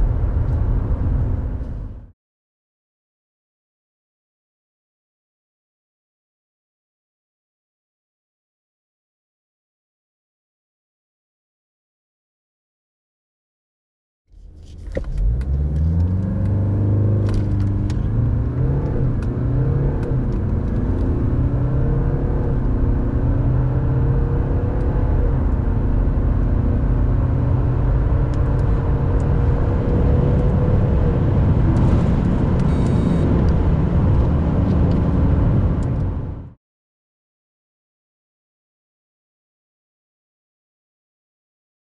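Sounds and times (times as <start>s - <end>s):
car engine accelerating through gears: 14.4s - 36.6s.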